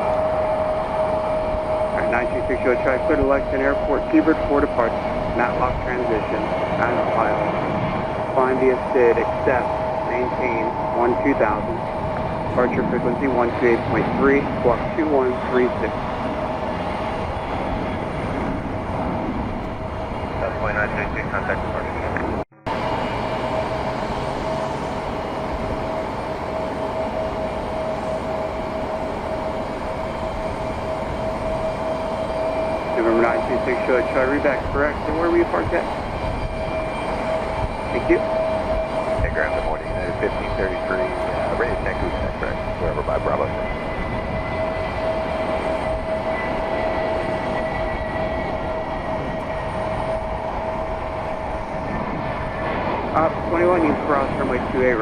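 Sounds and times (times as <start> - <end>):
jet engines rumbling and whining: 0.0 - 55.0.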